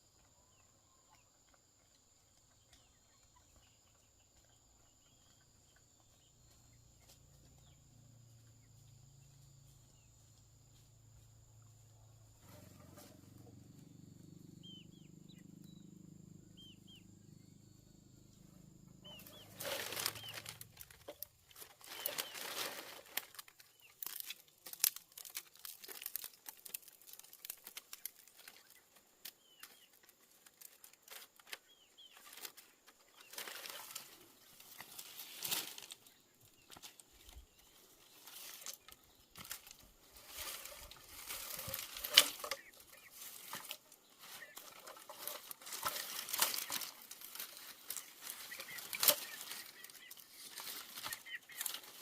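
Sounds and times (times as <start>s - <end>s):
rustling and flapping: 19.1s - 28.7s, 30.4s - 36.1s, 36.7s - 52.0s.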